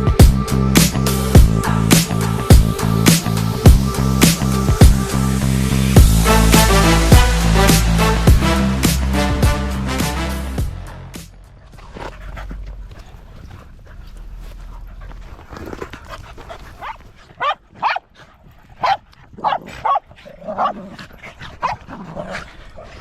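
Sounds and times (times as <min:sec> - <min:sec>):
small dogs yapping: 0:12.0 - 0:22.4.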